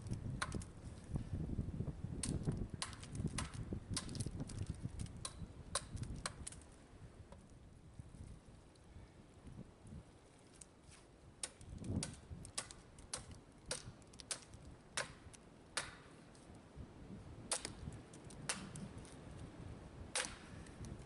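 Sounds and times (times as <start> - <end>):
axe chopping a log: 2.2 - 4.2, 11.4 - 16.1, 17.5 - 17.8, 18.5 - 18.8, 20.1 - 20.6.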